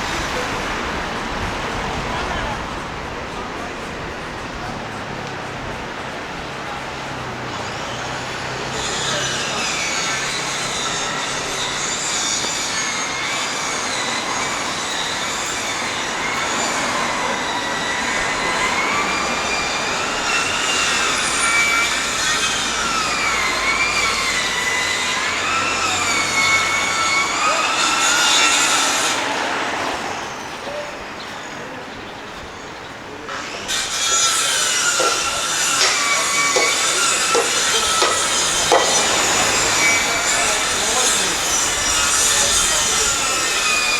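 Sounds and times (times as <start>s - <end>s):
city rumble: 0.0s - 43.9s
train wheels squealing on rails: 0.0s - 43.9s.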